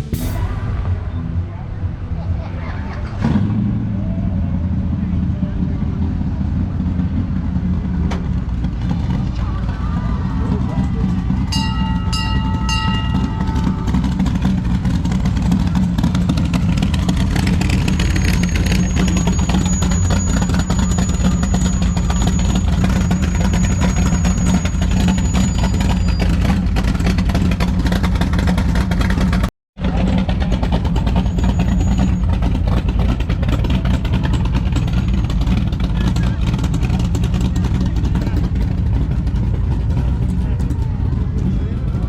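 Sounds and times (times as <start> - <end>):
car engine rumbling: 0.0 - 42.0.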